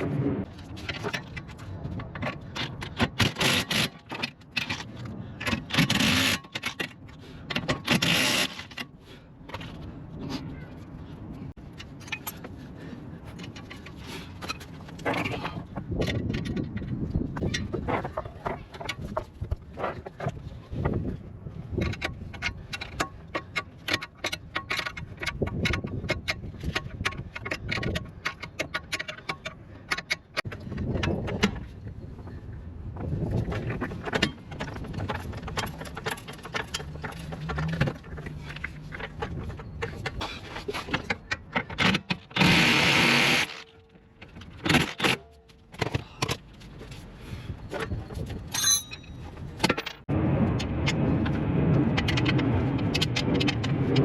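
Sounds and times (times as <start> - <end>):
metallic clicks and knocks: 21.7 - 31.8, 33.6 - 42.4, 47.7 - 50.1.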